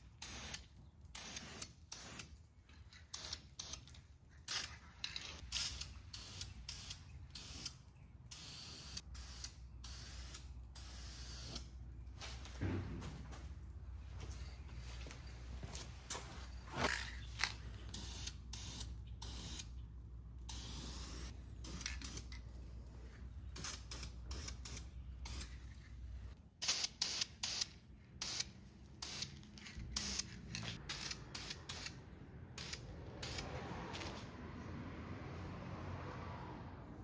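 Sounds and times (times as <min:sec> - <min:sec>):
spray paint hissing: 0:00.1 - 0:02.4, 0:03.1 - 0:03.8, 0:05.5 - 0:11.7, 0:17.9 - 0:19.7, 0:20.5 - 0:22.3, 0:23.5 - 0:25.6, 0:26.6 - 0:32.0, 0:32.6 - 0:33.5.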